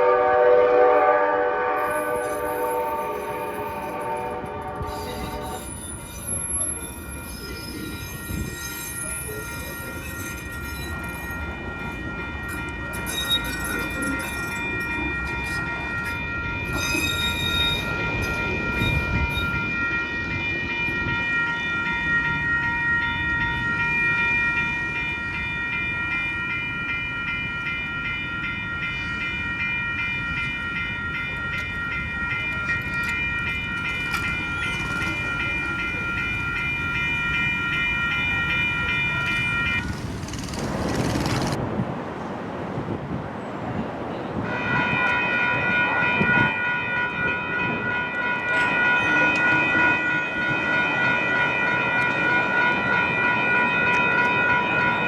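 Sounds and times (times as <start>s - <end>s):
train horn blast: 0.0s - 5.7s
high wheel squeal: 4.8s - 11.0s
train wheels rumbling: 31.4s - 41.9s.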